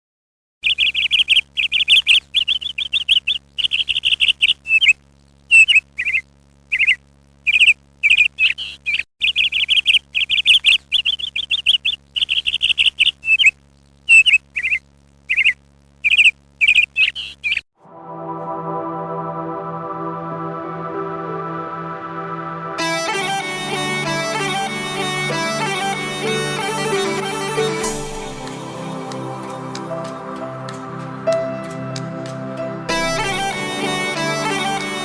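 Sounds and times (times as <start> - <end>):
small bird chirping and trilling: 0.6 - 17.6
keyboard music: 17.8 - 35.0.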